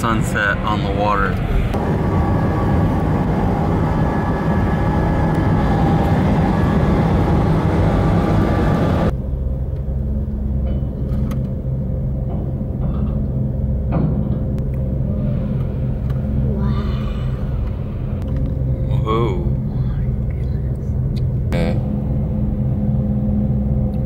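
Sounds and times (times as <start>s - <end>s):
rushing noise: 0.0s - 9.1s, 14.6s - 20.3s
ferry engines droning: 0.0s - 24.0s
low engine hum: 0.0s - 24.0s.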